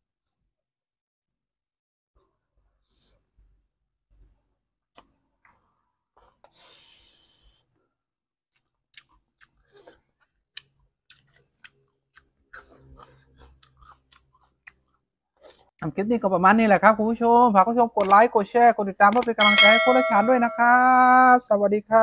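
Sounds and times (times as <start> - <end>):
person chewing and crunching: 8.5 - 15.7.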